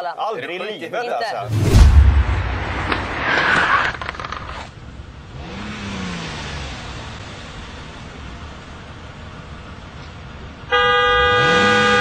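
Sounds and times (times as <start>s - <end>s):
street traffic: 1.4s - 12.0s
car engine revving: 1.5s - 8.2s.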